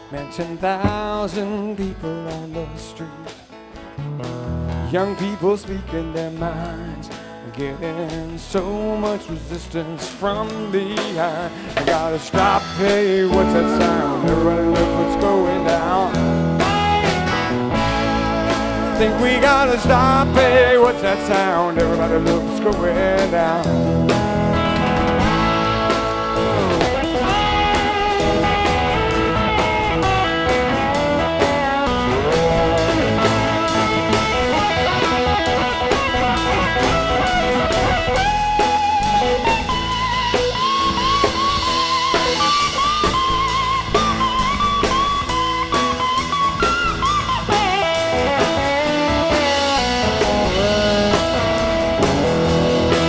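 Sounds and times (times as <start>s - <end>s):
bass: 0.0s - 53.0s
drum kit: 0.0s - 53.0s
electric guitar lead: 0.0s - 53.0s.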